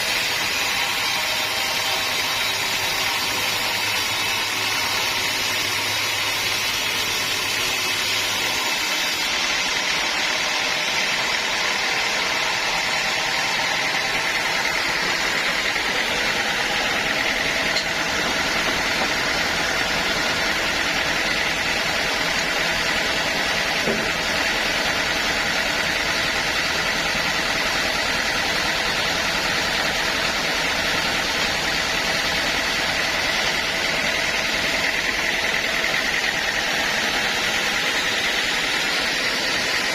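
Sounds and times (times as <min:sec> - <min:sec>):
band saw running with high whine: 0:00.0 - 0:39.9.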